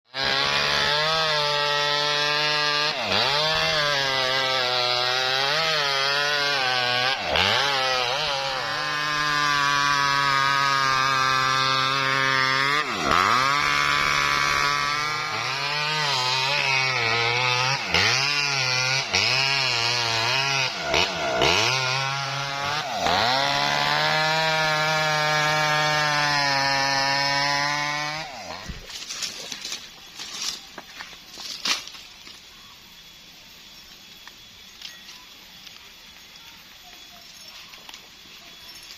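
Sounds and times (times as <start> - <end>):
sawmill engine cutting wood: 0.1 - 30.9.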